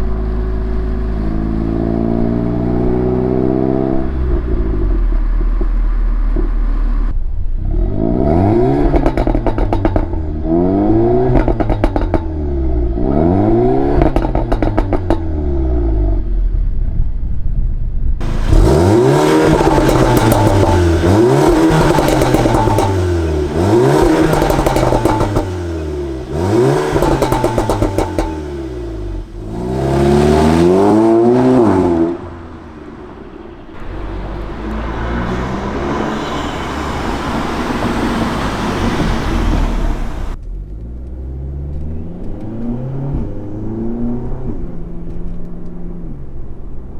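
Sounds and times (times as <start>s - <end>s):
exhaust pops and crackles: 18.2s - 42.6s
car engine revving: 18.2s - 44.7s.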